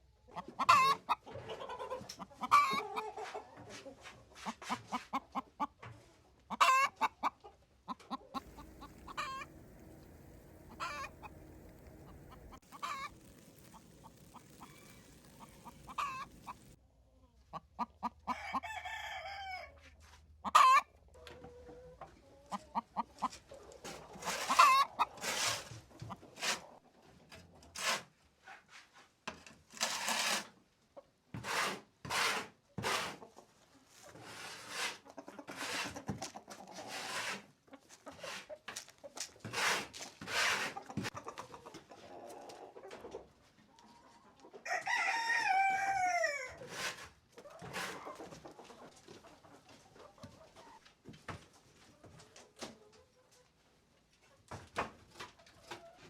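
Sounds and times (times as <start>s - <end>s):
chickens clucking and calling: 0.3s - 19.8s, 20.4s - 27.2s, 33.1s - 50.8s.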